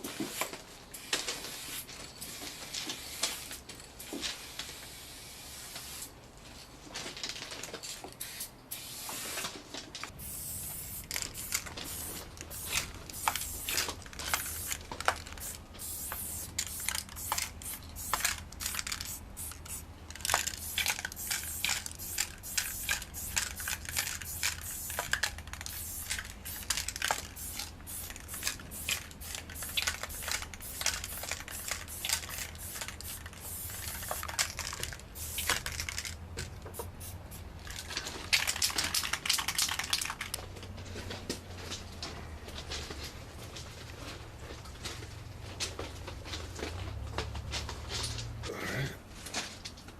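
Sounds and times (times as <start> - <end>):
spray paint can hissing: 0.0 - 6.1, 8.2 - 9.4, 10.1 - 40.4.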